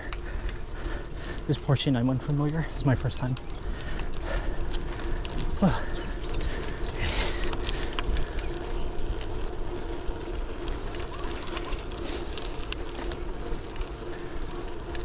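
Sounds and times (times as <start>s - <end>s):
bike tyre road rumble: 0.0s - 15.0s
small clicks and rattles: 0.0s - 15.0s.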